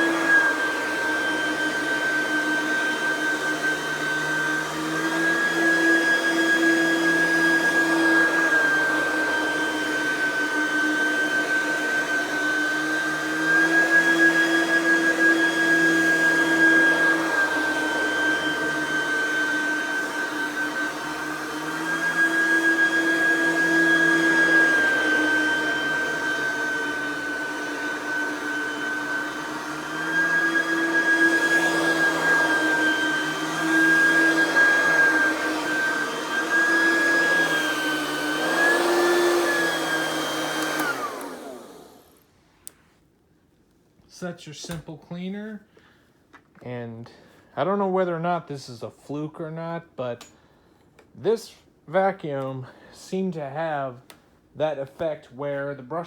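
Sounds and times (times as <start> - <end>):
vacuum cleaner whining: 0.0 - 42.3.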